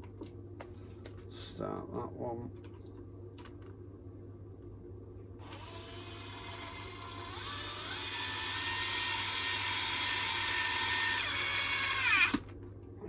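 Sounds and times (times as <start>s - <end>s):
electric screwdriver motor whine: 5.4s - 12.4s.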